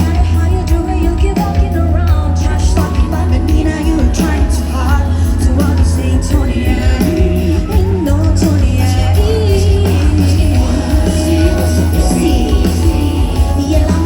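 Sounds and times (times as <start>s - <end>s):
heavy bass: 0.0s - 14.0s
live band music: 0.0s - 14.0s
person singing: 0.0s - 14.0s.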